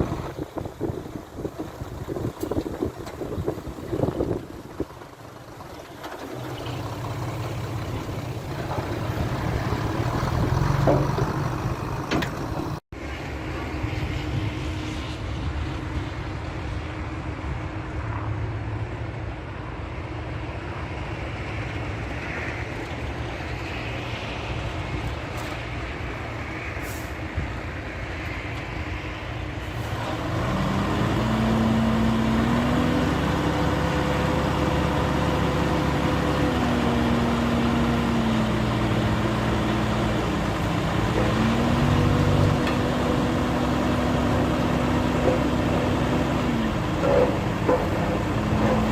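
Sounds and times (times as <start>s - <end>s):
heavy diesel machinery running: 0.0s - 22.3s, 29.2s - 48.9s
engine revving under load: 6.4s - 12.8s, 29.7s - 48.9s.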